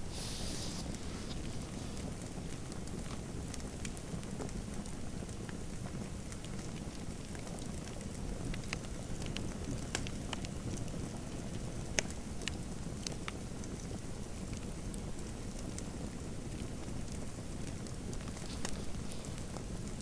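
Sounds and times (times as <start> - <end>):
fire rushing: 0.0 - 3.1
wood fire popping: 0.0 - 20.0.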